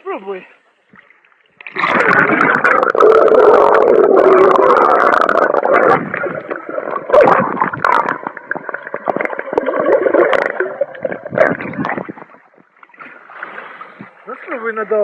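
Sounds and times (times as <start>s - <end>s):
crackling clicks underwater: 0.9s - 13.1s
underwater gurgling and bubbling: 1.6s - 12.8s.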